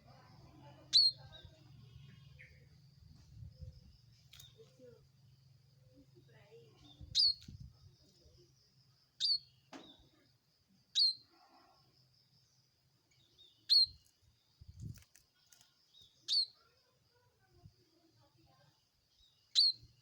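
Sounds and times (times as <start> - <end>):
bird sharp chirps: 0.9 - 1.6, 6.8 - 7.7, 9.2 - 10.1, 10.9 - 11.3, 13.1 - 14.1, 15.5 - 16.6, 19.2 - 20.0.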